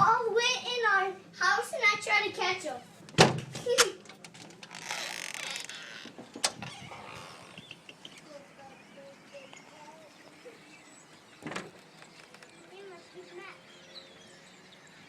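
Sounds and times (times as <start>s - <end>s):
flock of birds chirping: 5.4s - 15.0s.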